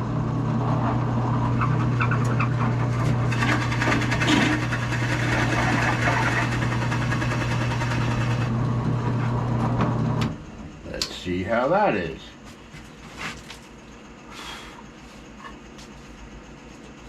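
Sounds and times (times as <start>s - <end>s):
power tool routing wood: 0.0s - 8.6s.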